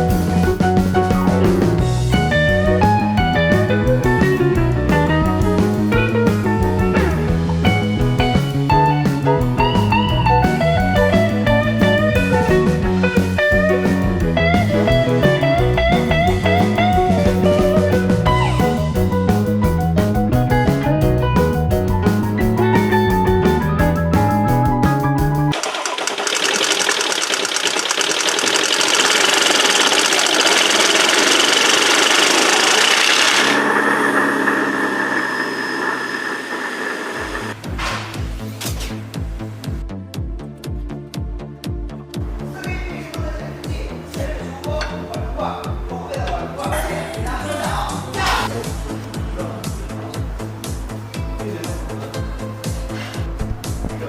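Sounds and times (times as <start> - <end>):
blues guitar with bass line: 0.0 - 25.6
car engine running: 0.0 - 37.6.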